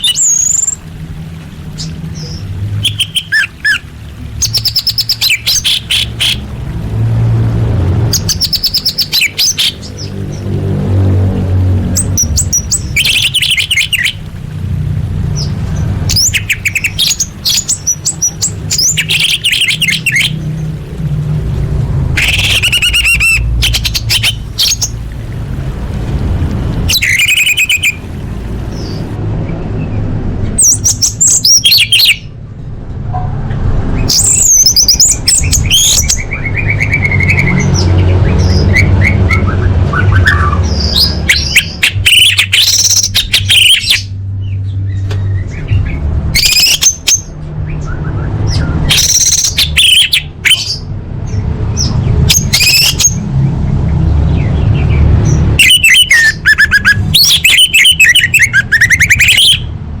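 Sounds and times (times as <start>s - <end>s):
thrush chirps and trills: 0.0s - 29.2s, 54.3s - 60.0s
steady low rumble: 0.0s - 31.5s.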